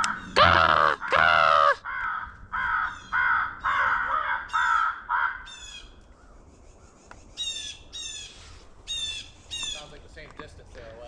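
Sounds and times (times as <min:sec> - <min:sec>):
crow cawing: 0:00.0 - 0:05.9
harsh squawking calls: 0:00.0 - 0:06.0, 0:07.3 - 0:10.0.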